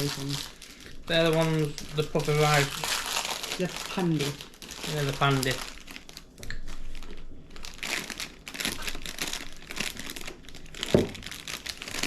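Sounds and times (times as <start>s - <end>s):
plastic snack packet crinkling: 0.0s - 12.0s
thump: 10.9s - 11.2s.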